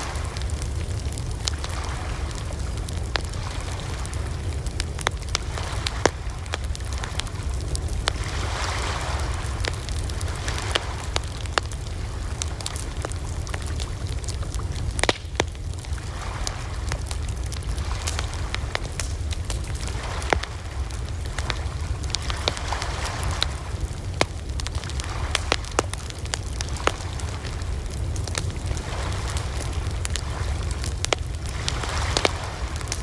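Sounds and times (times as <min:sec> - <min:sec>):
campfire crackling: 0:00.0 - 0:33.0
sharp pops and snaps: 0:12.4 - 0:27.6, 0:30.0 - 0:33.0.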